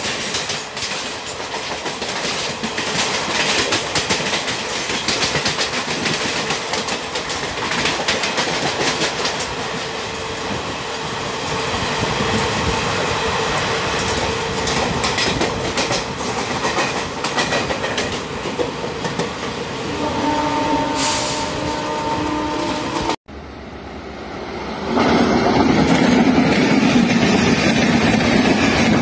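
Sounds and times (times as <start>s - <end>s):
wheels clacking over rail joints: 0.0s - 10.6s, 13.5s - 19.6s, 25.0s - 29.0s
train wheels rumbling: 0.0s - 29.0s.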